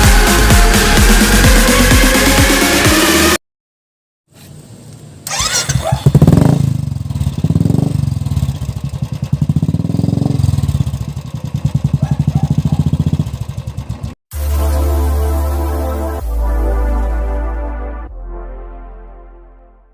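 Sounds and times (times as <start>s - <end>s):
motorcycle engine idling: 5.3s - 14.2s.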